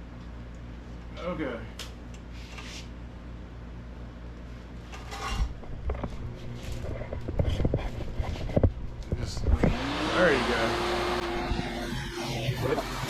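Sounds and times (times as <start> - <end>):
vacuum cleaner running: 9.3 - 13.0.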